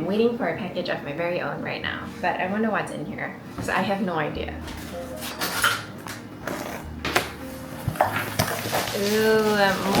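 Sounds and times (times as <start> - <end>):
soft background music: 0.0 - 10.0
cardboard package scraping and clicking: 6.5 - 10.0.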